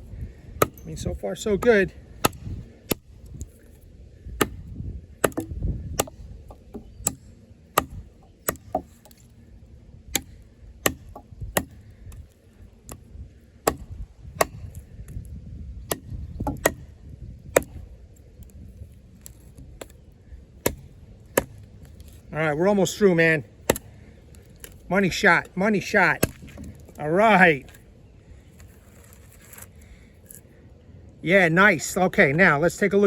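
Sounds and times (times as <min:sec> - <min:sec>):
knife chopping into log: 0:04.4 - 0:04.6, 0:05.2 - 0:07.2, 0:07.8 - 0:09.2, 0:10.1 - 0:11.8, 0:13.7 - 0:14.8, 0:15.9 - 0:16.9, 0:20.6 - 0:21.6, 0:26.2 - 0:26.8.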